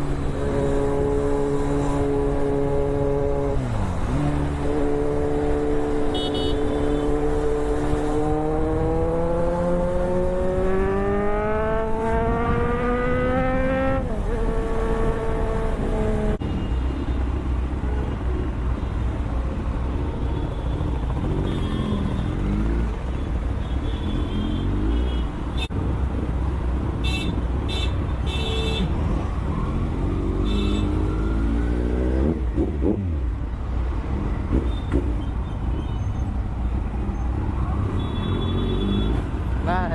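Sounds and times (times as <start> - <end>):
motorcycle engine accelerating: 7.2 - 16.4.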